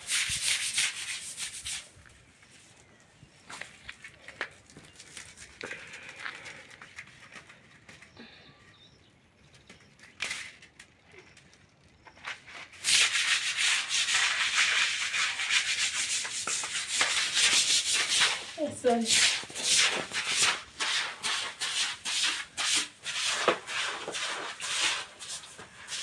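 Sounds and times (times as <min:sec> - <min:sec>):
scrubbing hard surface: 0:00.0 - 0:02.0, 0:12.3 - 0:26.0.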